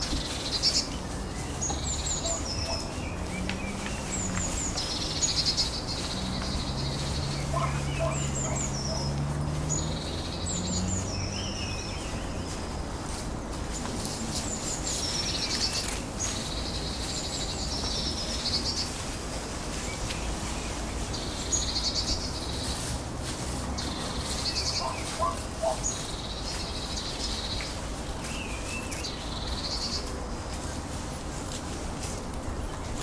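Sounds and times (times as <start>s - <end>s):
songbird trilling: 0.6s - 12.4s, 24.2s - 27.5s.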